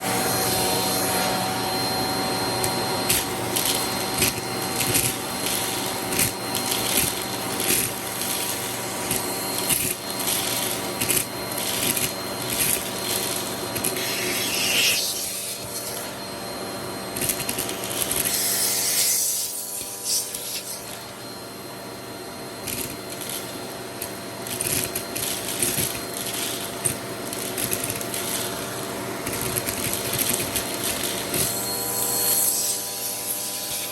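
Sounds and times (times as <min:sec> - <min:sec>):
vacuum cleaner motor whining: 0:00.0 - 0:33.9
vacuum attachment rubbing and clicking: 0:02.6 - 0:16.1, 0:22.6 - 0:31.6.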